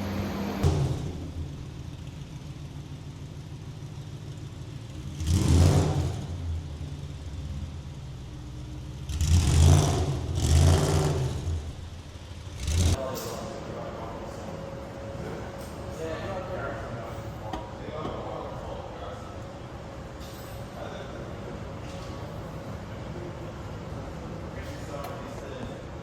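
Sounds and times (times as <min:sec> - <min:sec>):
engine throttle blips: 0:00.0 - 0:20.2
car engine idling: 0:00.0 - 0:26.0.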